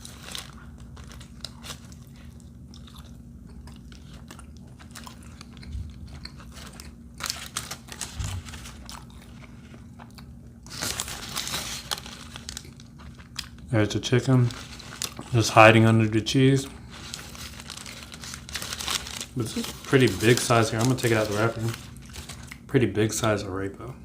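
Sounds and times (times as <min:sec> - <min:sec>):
close-up chewing: 0:00.1 - 0:11.2.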